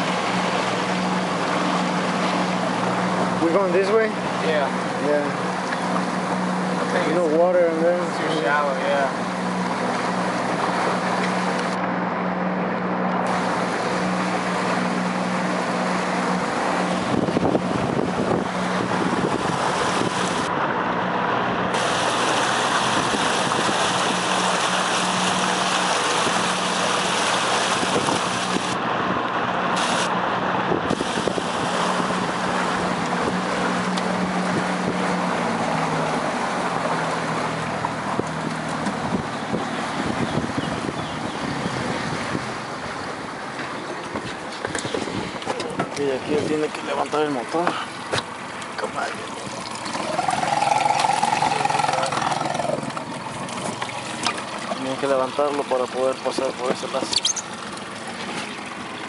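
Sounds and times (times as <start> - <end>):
outboard motor running: 0.0 - 59.0
water noise: 0.0 - 59.0
wind on microphone: 16.7 - 20.6, 22.7 - 24.7, 27.6 - 28.8, 29.8 - 35.4, 38.0 - 43.2, 44.1 - 46.6.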